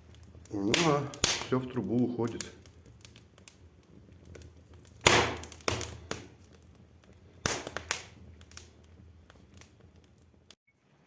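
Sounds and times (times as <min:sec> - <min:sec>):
firewood crackling in a fireplace: 0:00.0 - 0:10.6
sharp loud wood pops: 0:00.7 - 0:01.6, 0:05.0 - 0:06.3, 0:07.4 - 0:08.2.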